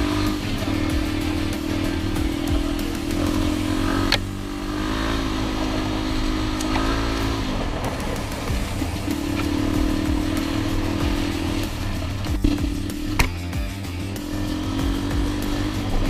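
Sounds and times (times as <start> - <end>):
dirt bike engine running: 0.0 - 16.0
wind and road noise: 0.0 - 16.0
sharp click: 12.2 - 13.6.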